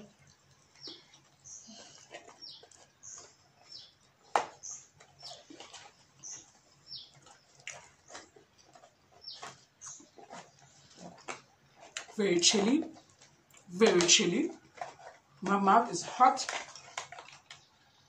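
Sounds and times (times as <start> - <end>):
close chewing and lip-smacking: 0.0 - 15.5, 16.3 - 18.0
bird chirping: 0.6 - 13.1.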